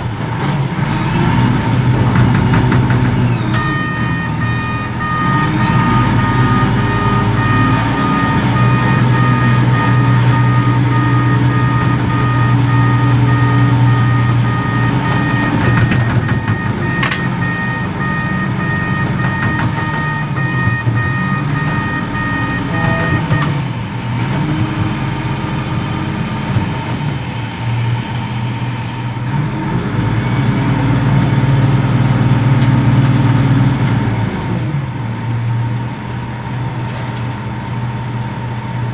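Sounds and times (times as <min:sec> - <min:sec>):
diesel engine working: 0:00.0 - 0:38.9
warning beeper: 0:03.1 - 0:23.9.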